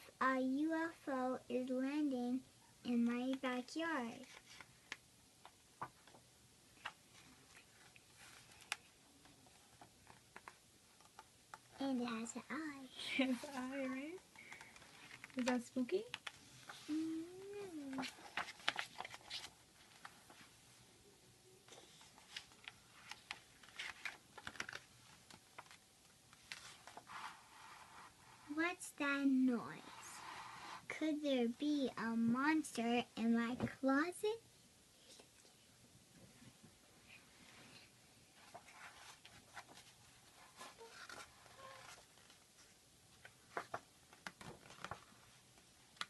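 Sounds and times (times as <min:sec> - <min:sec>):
book handling clicks and taps: 0:06.8 - 0:11.8, 0:22.2 - 0:27.0, 0:43.2 - 0:46.0
paper rustling: 0:13.2 - 0:16.9, 0:17.7 - 0:20.5, 0:21.7 - 0:28.5, 0:38.4 - 0:46.0.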